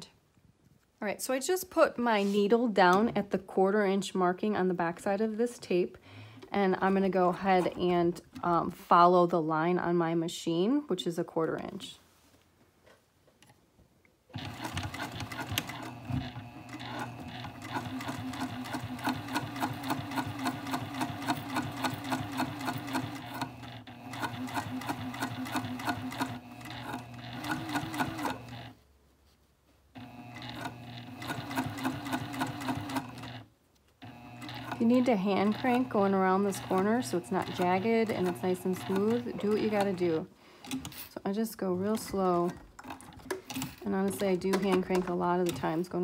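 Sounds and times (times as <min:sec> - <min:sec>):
sewing machine stitching: 0:14.3 - 0:28.8, 0:30.0 - 0:41.1.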